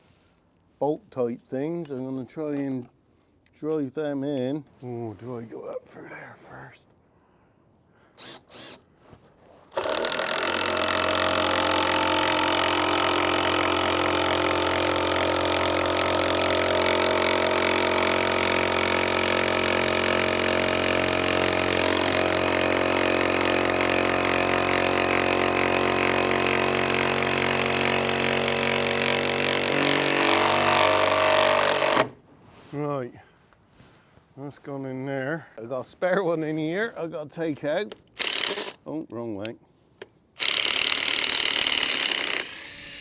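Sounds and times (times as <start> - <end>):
power drill clicks: 8.2 - 8.8, 37.9 - 38.8, 40.0 - 43.0
power drill driving screw into timber: 8.2 - 8.9, 9.7 - 32.2, 38.2 - 38.8, 40.4 - 43.0.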